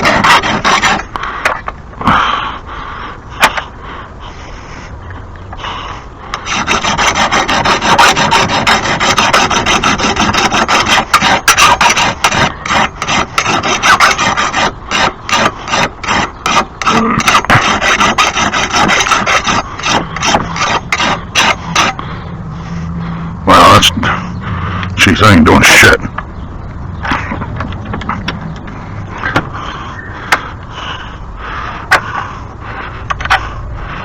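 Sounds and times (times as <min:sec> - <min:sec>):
file rasping on metal blade: 0:00.0 - 0:01.1, 0:06.3 - 0:22.0.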